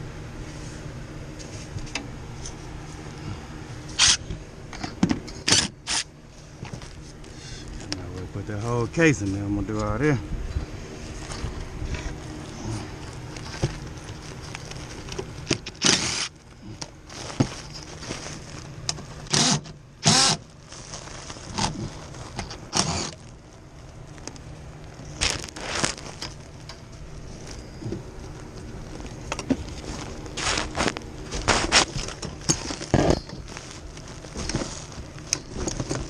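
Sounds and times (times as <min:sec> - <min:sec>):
steady low hum: 0:00.0 - 0:36.0
parts and tools being moved: 0:11.1 - 0:23.3, 0:25.1 - 0:36.0.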